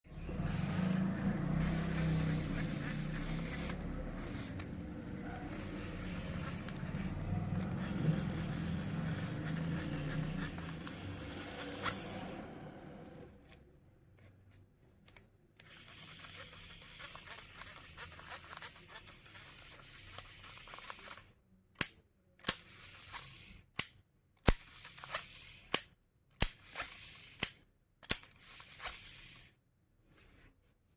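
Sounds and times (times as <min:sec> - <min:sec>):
fishing reel whirring: 0:00.2 - 0:12.5, 0:15.6 - 0:21.2.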